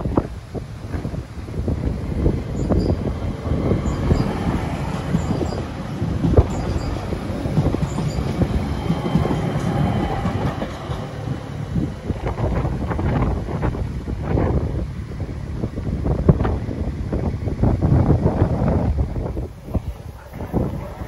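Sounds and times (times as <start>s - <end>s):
train wheels clattering over track: 1.9s - 14.6s.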